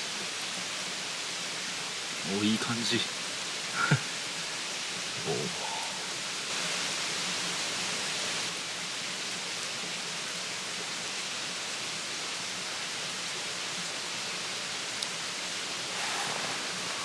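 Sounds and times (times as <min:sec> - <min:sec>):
steady rushing noise: 0:15.7 - 0:17.0.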